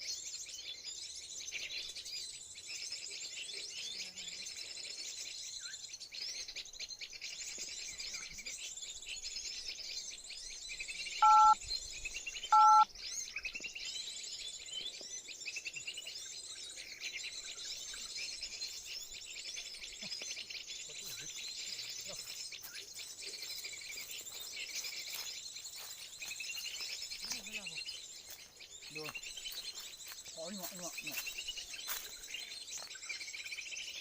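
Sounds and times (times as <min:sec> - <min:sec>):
small birds twittering and chirping: 0:00.0 - 0:34.0
short two-tone beeps: 0:11.2 - 0:11.6, 0:12.6 - 0:12.8.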